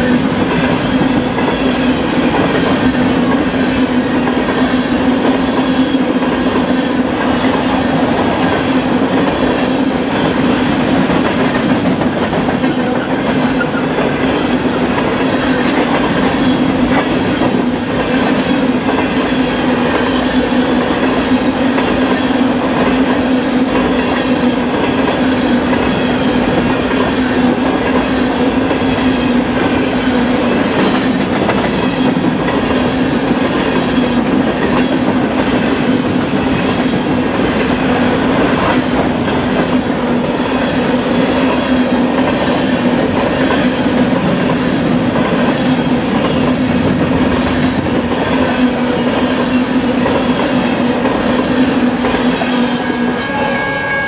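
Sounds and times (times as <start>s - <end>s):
clickety-clack of rail joints: 0.0s - 53.2s
train wheels rumbling on rails: 0.0s - 54.0s.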